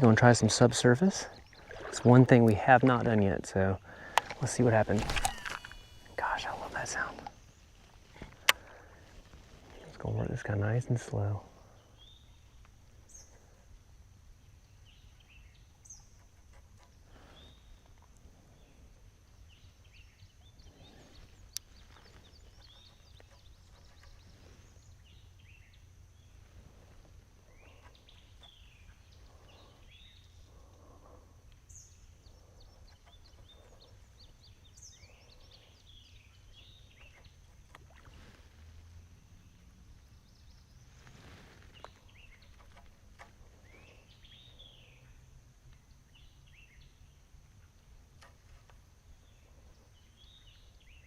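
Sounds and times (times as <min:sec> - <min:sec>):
low steady background hum: 0:00.0 - 0:51.0
sharp click: 0:04.1 - 0:06.2.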